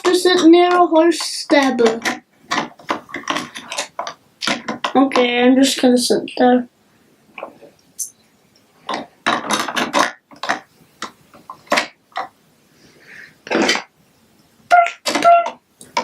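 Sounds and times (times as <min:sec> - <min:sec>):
plastic bricks clattering: 0:00.0 - 0:05.3, 0:08.9 - 0:12.3.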